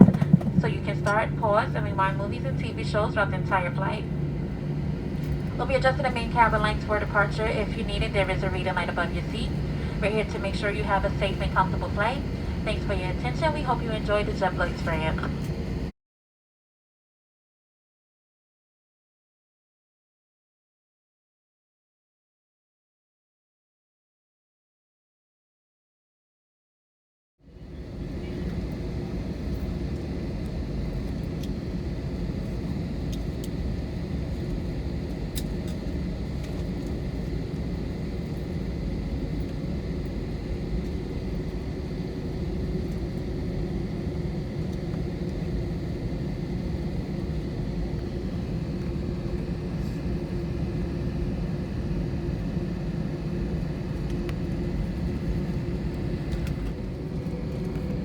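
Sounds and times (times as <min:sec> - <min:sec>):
airliner engine rumble: 0:00.0 - 0:15.9, 0:27.5 - 0:58.0
cabin airflow noise: 0:00.0 - 0:15.9
faint steady whine: 0:00.0 - 0:15.9.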